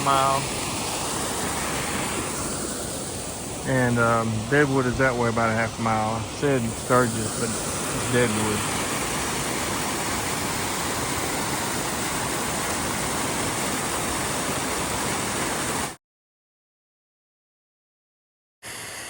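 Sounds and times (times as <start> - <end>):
small waterfall rushing: 0.0 - 16.0.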